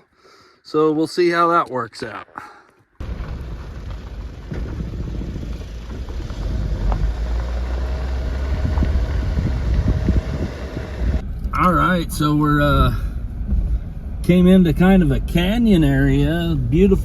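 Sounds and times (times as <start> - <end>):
knocks from rough road: 3.0 - 11.2
vehicle engine and tyres rumbling: 3.0 - 17.0.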